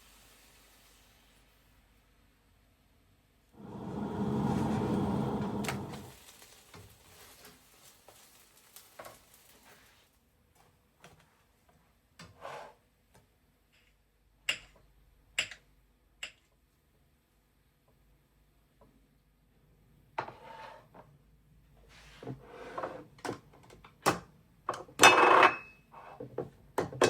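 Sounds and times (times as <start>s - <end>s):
loud rush of noise: 3.6s - 6.1s.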